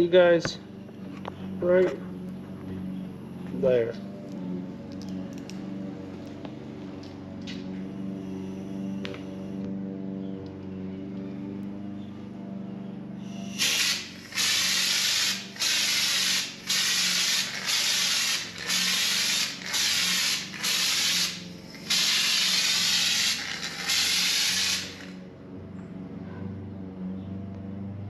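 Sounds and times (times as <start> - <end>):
spray gun hissing bursts: 13.5 - 25.1.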